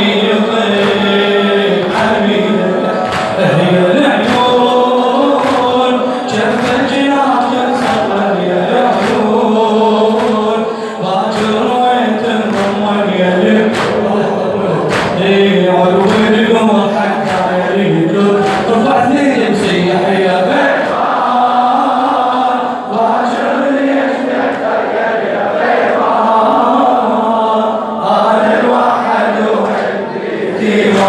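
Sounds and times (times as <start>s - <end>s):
sharp rhythmic strikes: 0.0s - 21.3s
man chanting melodic lament: 0.0s - 24.5s.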